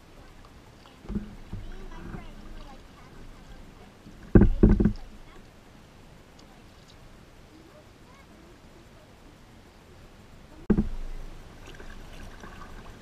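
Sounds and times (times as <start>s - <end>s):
quiet river ambience: 0.0s - 13.0s
low rumble: 1.1s - 5.4s, 10.2s - 13.0s
loud thump: 4.3s - 5.1s, 10.7s - 11.3s.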